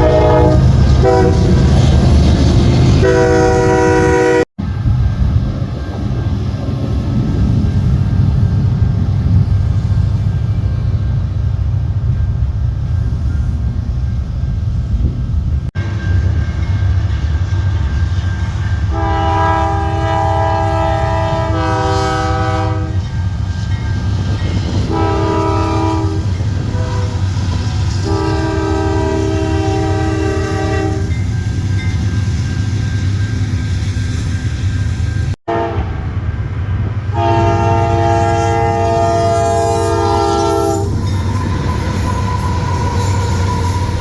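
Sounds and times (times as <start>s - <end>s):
locomotive air horn chord: 0.0s - 1.6s, 3.0s - 4.5s, 18.9s - 23.0s, 24.9s - 31.2s, 35.5s - 36.1s, 37.1s - 41.0s
passing train rumble: 0.0s - 44.0s.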